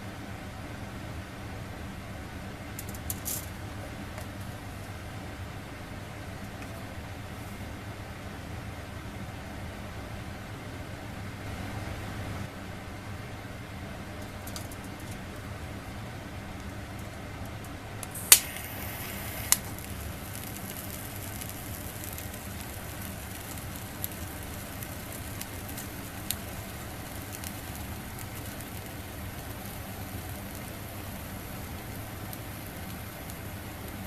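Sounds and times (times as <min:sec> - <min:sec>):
food sizzling on a grill: 0:18.0 - 0:34.0.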